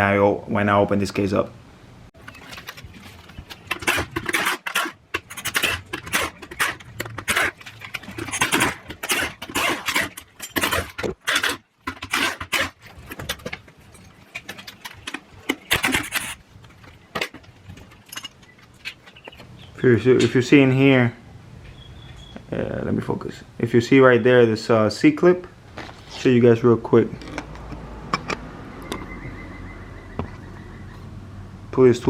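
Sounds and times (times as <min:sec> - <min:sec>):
metal tools clinking and scraping: 0:02.2 - 0:19.5.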